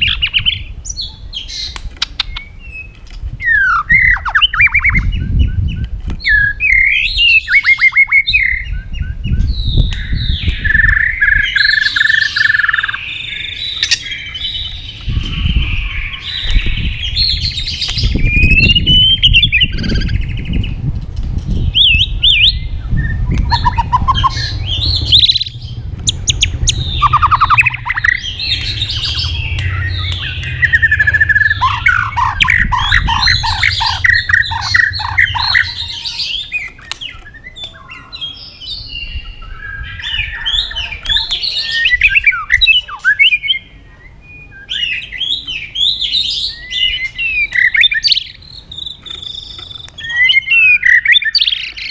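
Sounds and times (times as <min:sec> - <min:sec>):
songbird singing: 0:00.0 - 0:51.9
steady low rumble: 0:08.4 - 0:38.0.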